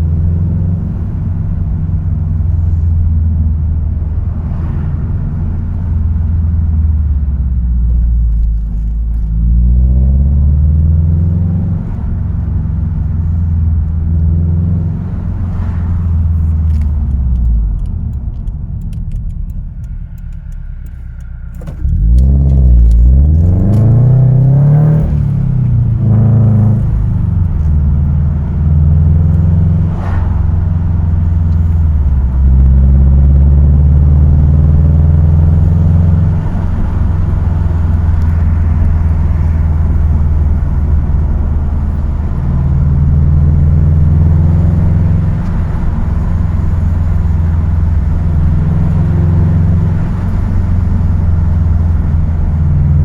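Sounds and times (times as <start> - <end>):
car engine revving: 0.0 - 53.0
light clicks: 16.5 - 24.0.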